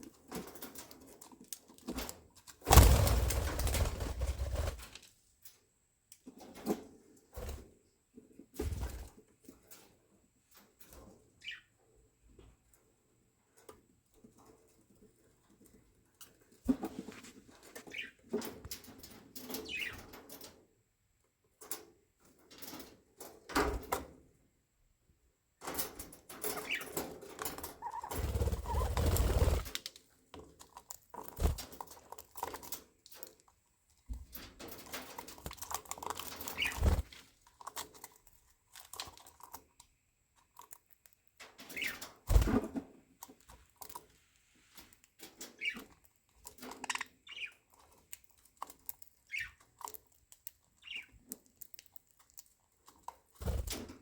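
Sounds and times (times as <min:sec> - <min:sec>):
budgerigars chattering and chirping: 0:27.8 - 0:28.1, 0:28.7 - 0:28.9, 0:45.6 - 0:45.9, 0:46.8 - 0:47.7, 0:50.8 - 0:51.1.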